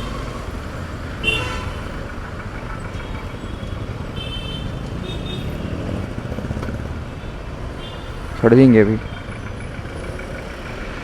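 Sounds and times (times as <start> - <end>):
road traffic rumble: 0.0 - 11.0
vehicle horn honks: 1.2 - 2.0.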